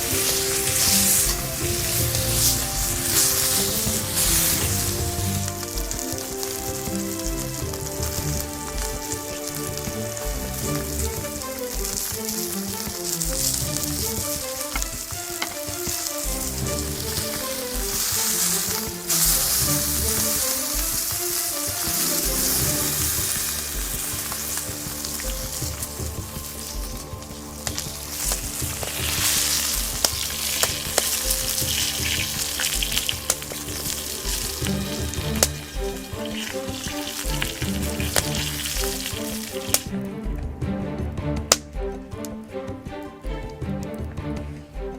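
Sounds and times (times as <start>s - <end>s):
steak sizzling in a frying pan: 0.0s - 7.0s, 14.0s - 27.0s, 27.7s - 39.8s
quiet background music: 0.0s - 44.9s.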